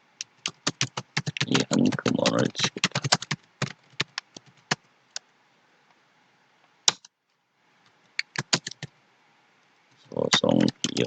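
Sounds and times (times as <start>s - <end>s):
computer keyboard typing: 0.3s - 4.9s, 8.2s - 8.9s, 10.3s - 11.0s.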